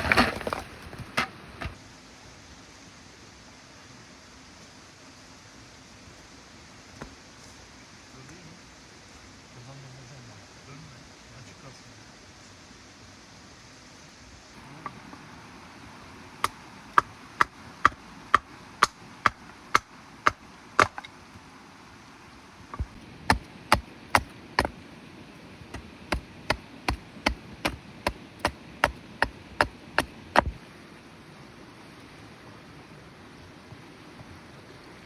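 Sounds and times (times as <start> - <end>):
wood being chopped: 16.4 - 21.1, 22.7 - 24.8, 25.7 - 30.6.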